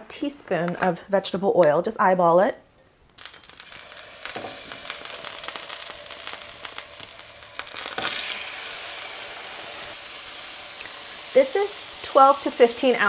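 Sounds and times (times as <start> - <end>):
chicken sizzling in hot oil: 3.2 - 13.0.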